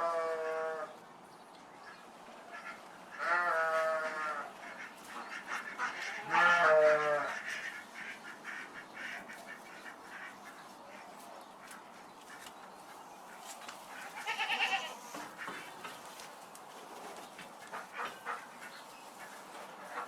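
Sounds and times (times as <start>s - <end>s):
farm animal bleating: 0.0s - 1.0s, 3.1s - 7.8s, 13.9s - 15.8s.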